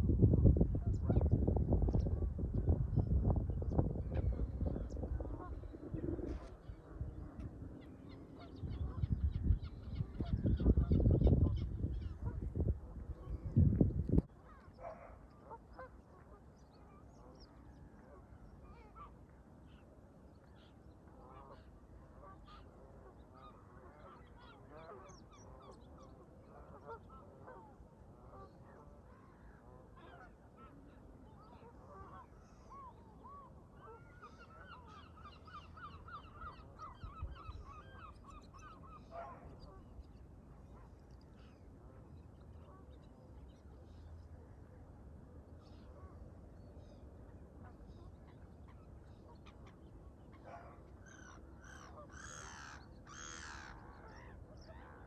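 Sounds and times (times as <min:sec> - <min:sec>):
water: 0:00.0 - 0:55.0
wind: 0:00.0 - 0:55.0.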